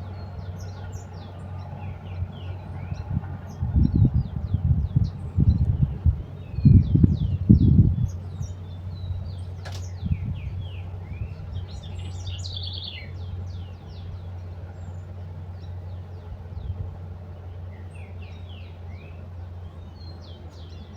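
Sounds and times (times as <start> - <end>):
loud low rumbling thumps: 0.0 - 14.3
small birds chirping: 0.0 - 20.9
steady low hum: 0.0 - 20.9.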